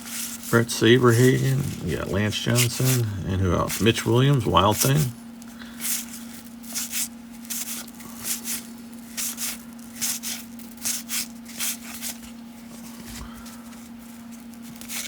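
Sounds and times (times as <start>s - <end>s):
cards flipped by hand: 1.1s - 3.1s, 5.8s - 12.4s.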